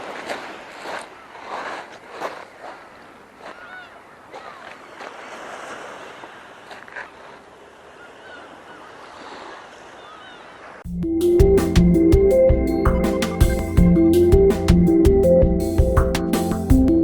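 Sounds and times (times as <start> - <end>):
wind: 0.0 - 17.0
faint bird calls: 3.4 - 5.5, 6.8 - 10.8
electronic music: 10.9 - 17.0.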